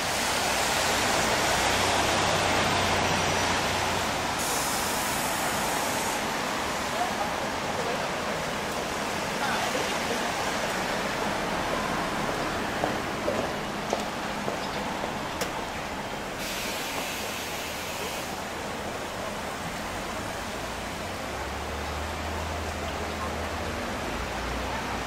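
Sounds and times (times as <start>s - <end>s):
steady rain falling: 0.0s - 25.0s
high hiss: 4.4s - 6.3s, 16.4s - 18.6s.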